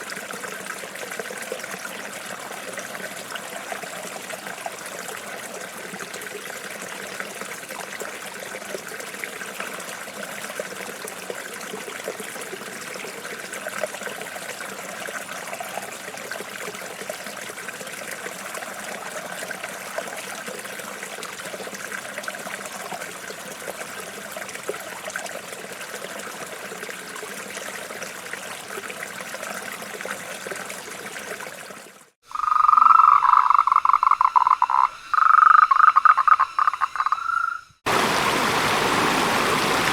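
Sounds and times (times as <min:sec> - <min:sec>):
stream trickling and babbling: 0:00.0 - 0:39.9
frog croaking: 0:32.2 - 0:37.8.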